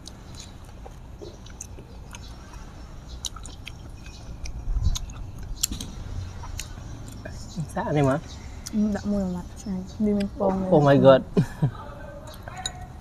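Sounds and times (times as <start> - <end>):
close-up chewing of food: 0.0 - 7.5.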